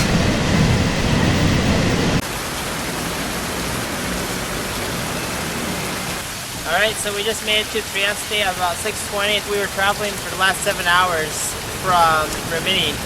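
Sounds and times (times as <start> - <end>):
low rumble: 0.0 - 2.2.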